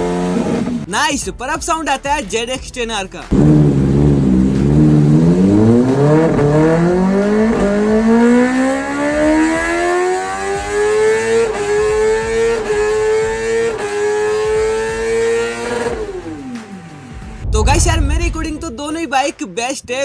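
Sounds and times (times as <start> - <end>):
motorcycle engine accelerating: 0.0 - 0.9, 3.3 - 18.2.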